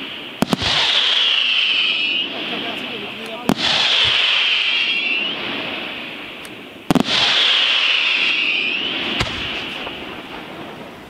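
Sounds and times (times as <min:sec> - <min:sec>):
firework bangs: 0:00.0 - 0:11.0.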